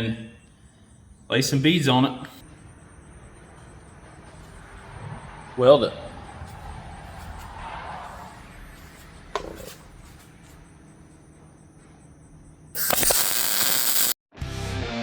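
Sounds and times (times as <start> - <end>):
low background hum: 0.0 - 13.6
arc welding crackling hiss: 12.7 - 14.2.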